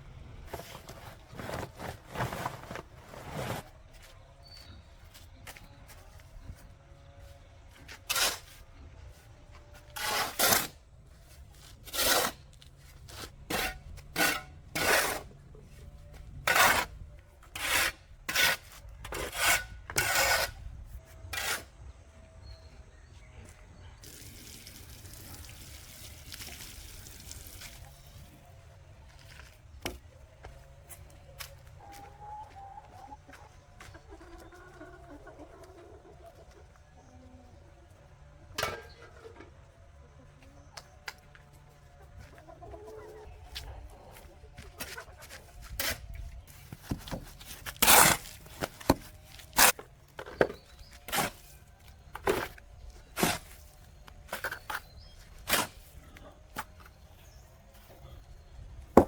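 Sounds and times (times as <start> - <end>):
rough scraping strokes: 0.4 - 3.8, 11.5 - 15.3, 16.4 - 21.7, 45.6 - 49.8.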